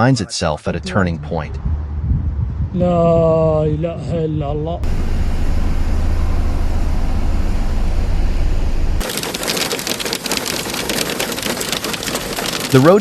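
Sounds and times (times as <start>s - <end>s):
loud steady low rumble: 0.6s - 9.0s
rain and hail pattering: 9.0s - 13.0s.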